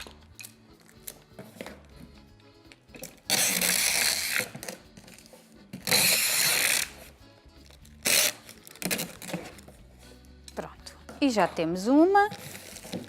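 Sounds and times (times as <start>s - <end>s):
packing tape pulled from dispenser: 3.0s - 9.6s, 12.3s - 13.0s.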